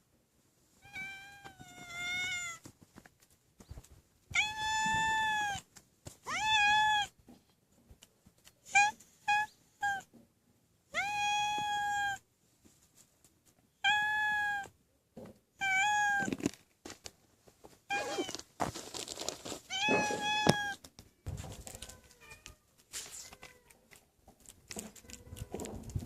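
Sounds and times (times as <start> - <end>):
cat meowing: 0.8 - 2.6, 4.3 - 5.6, 6.3 - 7.2, 8.7 - 10.1, 10.9 - 12.2, 13.8 - 14.7, 15.6 - 16.4, 17.9 - 18.4, 19.7 - 20.8.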